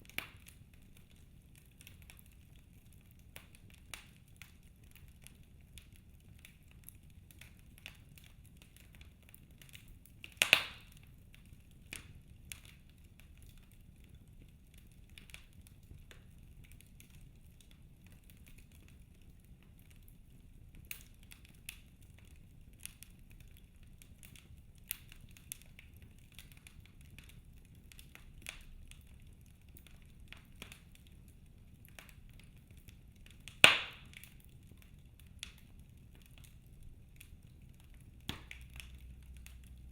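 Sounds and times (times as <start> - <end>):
wood fire crackling: 0.0 - 39.9
loud wood pops: 33.6 - 34.0.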